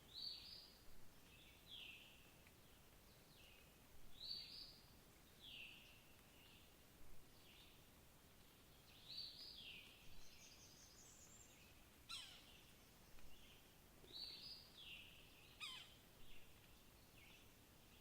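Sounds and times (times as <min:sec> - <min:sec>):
faint songbird calls: 0:08.8 - 0:18.0.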